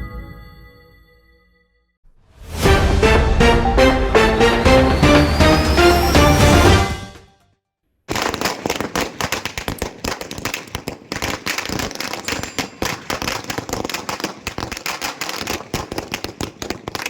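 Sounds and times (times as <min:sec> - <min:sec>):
firecrackers going off: 0:03.8 - 0:07.2, 0:08.1 - 0:17.0.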